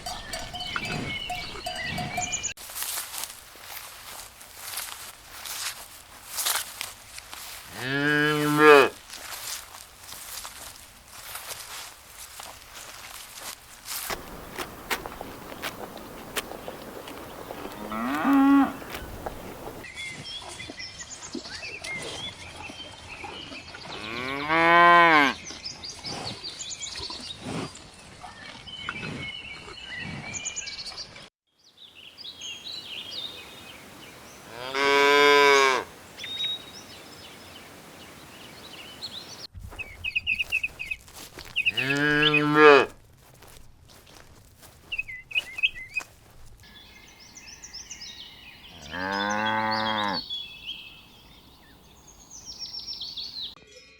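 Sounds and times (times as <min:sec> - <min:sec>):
cows mooing: 0:00.0 - 0:02.5, 0:07.7 - 0:09.0, 0:17.4 - 0:19.8, 0:34.5 - 0:35.9, 0:41.7 - 0:42.9, 0:48.7 - 0:50.2
birds chirping: 0:00.0 - 0:02.6, 0:14.1 - 0:19.8, 0:31.8 - 0:43.5, 0:44.1 - 0:53.6.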